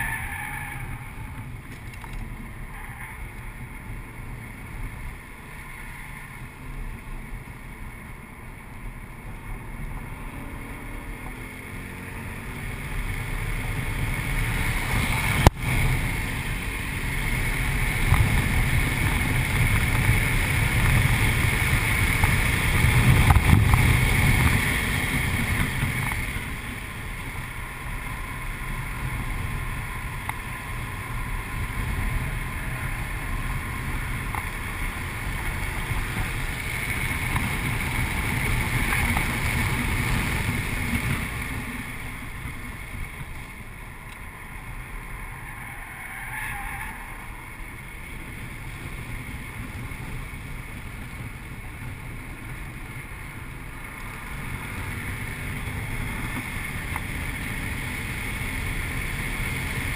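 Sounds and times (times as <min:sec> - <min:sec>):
car engine under load: 0:00.0 - 0:59.9
road noise: 0:00.0 - 0:59.9
wind noise: 0:12.3 - 0:59.9.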